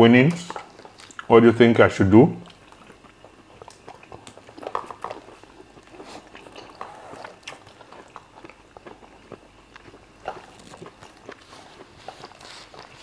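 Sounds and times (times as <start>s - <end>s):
chewing and wet mouth sounds: 0.2s - 1.4s, 2.4s - 13.0s.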